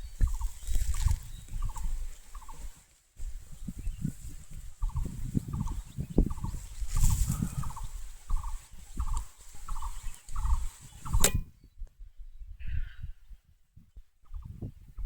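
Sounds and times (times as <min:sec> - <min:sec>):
low wind-like rumble: 0:00.0 - 0:15.0
bird rattling call: 0:05.6 - 0:11.4
sharp click: 0:11.1 - 0:11.5.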